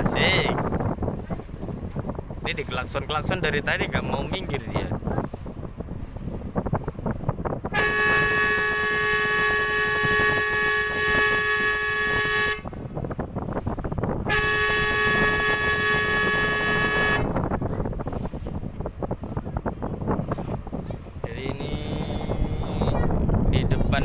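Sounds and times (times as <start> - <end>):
ship's horn blasts: 7.4 - 18.4, 20.6 - 24.0.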